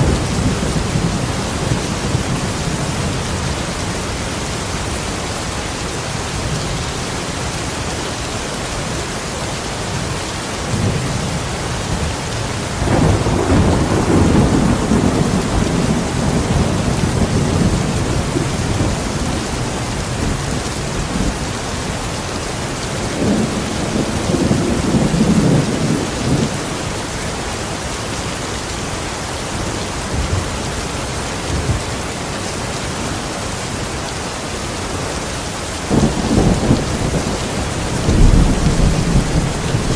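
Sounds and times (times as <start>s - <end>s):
heavy rain: 0.0s - 39.9s
thunder rumbling: 10.8s - 21.6s, 35.9s - 39.9s.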